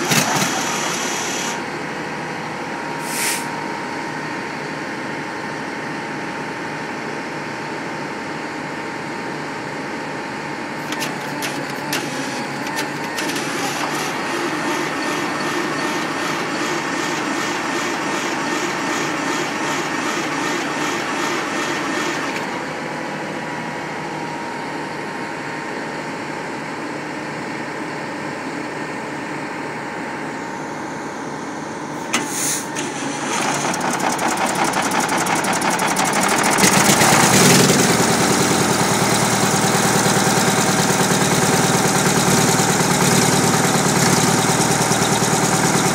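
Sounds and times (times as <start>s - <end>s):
pump engine running: 0.0s - 5.1s, 10.7s - 23.8s, 32.0s - 45.9s
sudden hiss: 3.0s - 3.5s.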